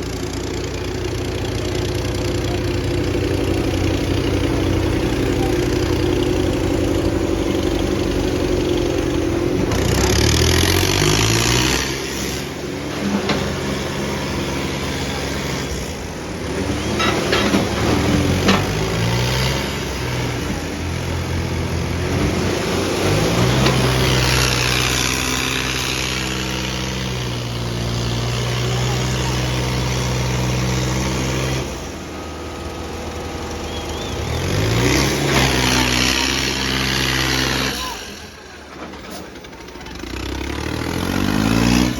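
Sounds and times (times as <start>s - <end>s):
tractor engines revving: 0.0s - 41.9s.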